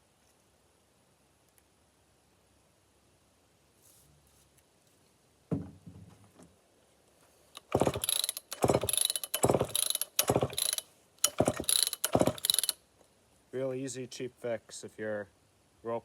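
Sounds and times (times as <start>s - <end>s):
recoil starter rope ratcheting whir: 7.6s - 12.8s.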